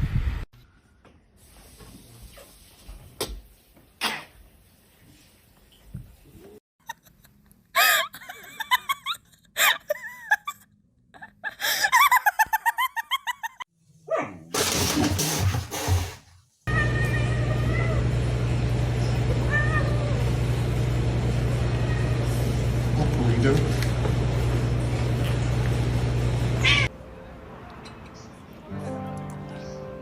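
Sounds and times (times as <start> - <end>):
person laughing: 6.8 - 13.6.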